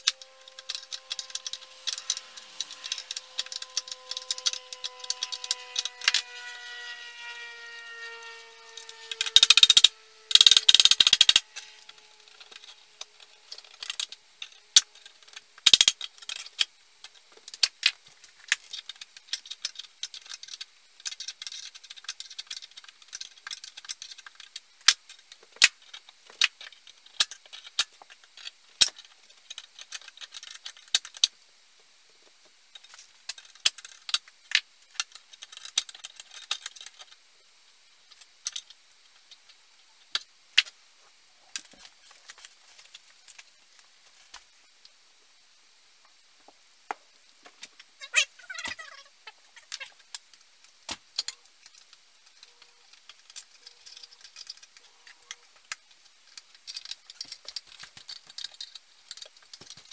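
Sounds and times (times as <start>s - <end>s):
metal parts and tools rattling: 0.0s - 6.6s, 51.2s - 59.9s.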